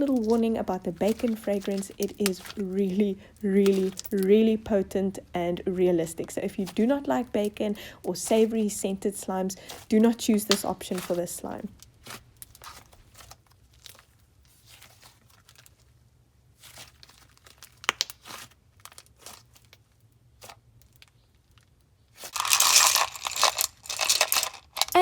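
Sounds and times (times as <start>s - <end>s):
slime squished by hand: 9.7s - 21.0s.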